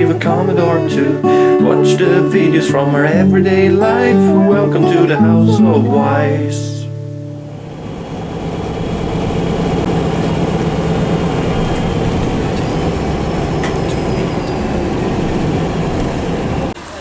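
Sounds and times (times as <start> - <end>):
bus engine and road rumble: 7.4 - 17.0
faint high whine: 7.4 - 17.0.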